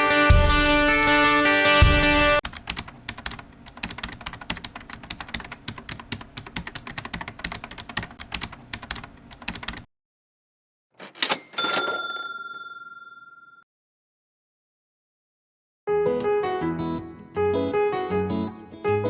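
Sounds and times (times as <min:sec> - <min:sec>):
computer keyboard typing: 0:02.4 - 0:09.9.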